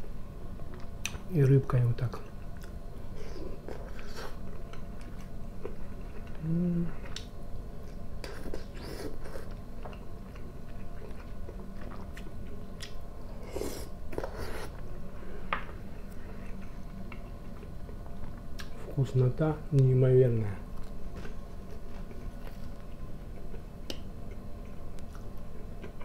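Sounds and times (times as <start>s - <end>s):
man chewing: 2.5s - 14.9s, 21.6s - 26.0s.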